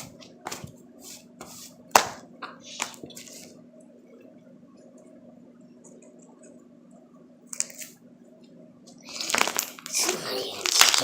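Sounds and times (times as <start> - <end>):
steady low hum: 0.0 - 11.0
slime squishing: 9.0 - 11.0.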